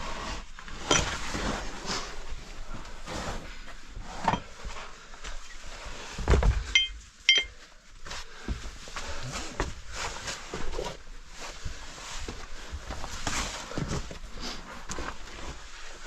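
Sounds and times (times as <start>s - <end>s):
sharp metal clinks: 6.8s - 7.5s.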